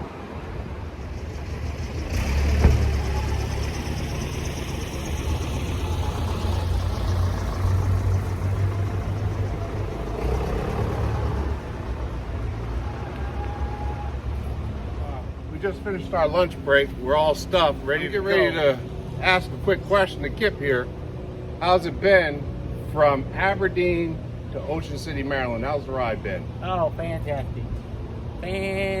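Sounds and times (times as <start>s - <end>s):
vehicle engine running: 1.0s - 12.5s.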